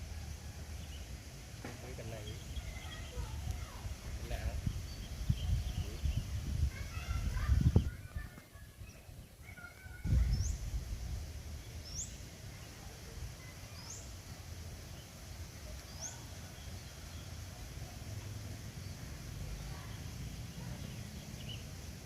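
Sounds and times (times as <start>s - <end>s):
small bird chirping: 1.8s - 22.0s
microphone rumbling bursts: 2.5s - 8.4s, 10.0s - 12.0s.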